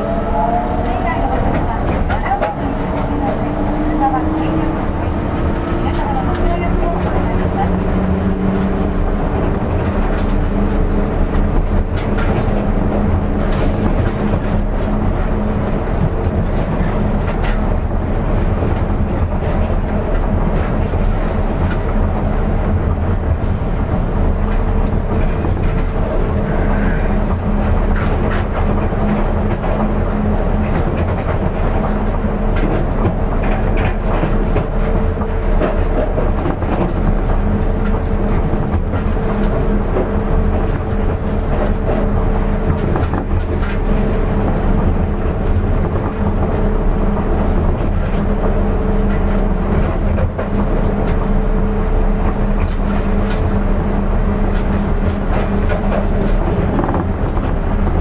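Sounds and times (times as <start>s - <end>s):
constant hum: 0.0s - 58.0s
train running rumble: 0.0s - 58.0s.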